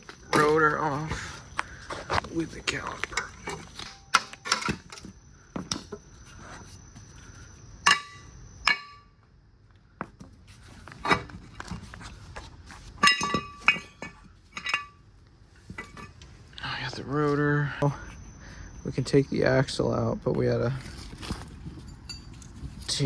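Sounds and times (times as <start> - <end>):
metal clinks and knocks: 0.0 - 6.0, 7.8 - 9.2, 12.8 - 16.3, 21.3 - 22.9.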